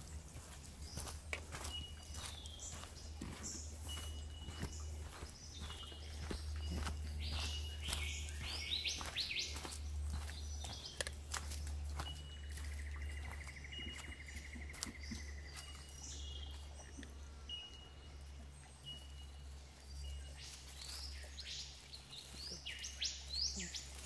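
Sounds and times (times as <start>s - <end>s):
forest birds calling: 0.0s - 24.0s.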